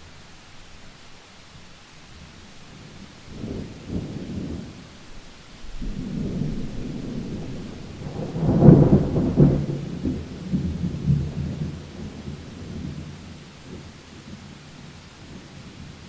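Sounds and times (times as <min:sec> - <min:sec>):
rain hissing: 0:00.0 - 0:16.0
thunder rolling: 0:05.7 - 0:13.9.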